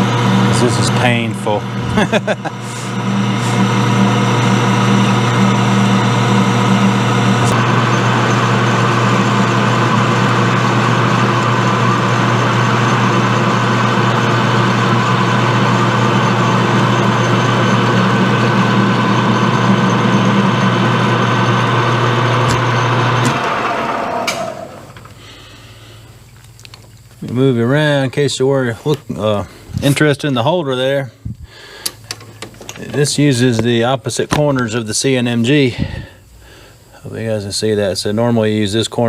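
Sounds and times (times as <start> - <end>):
tool cutting metal: 0.0 - 10.4, 22.4 - 23.5
lathe winding down: 0.0 - 25.2
metal lathe humming: 0.0 - 25.4.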